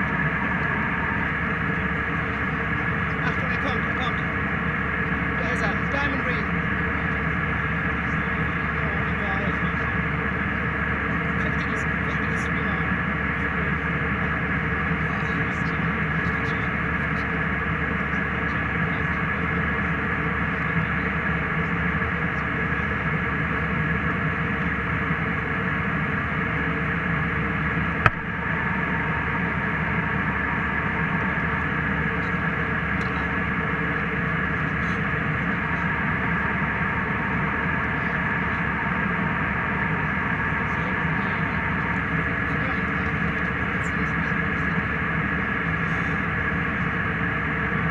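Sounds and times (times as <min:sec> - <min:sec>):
airliner cabin engine noise: 0:00.0 - 0:47.9
steady tones: 0:27.8 - 0:42.9
sharp click: 0:28.1 - 0:28.3.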